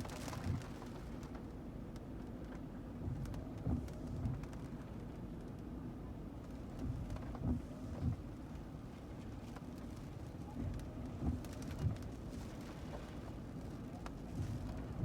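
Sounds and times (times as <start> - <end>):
faint rain patter: 0.0 - 15.0.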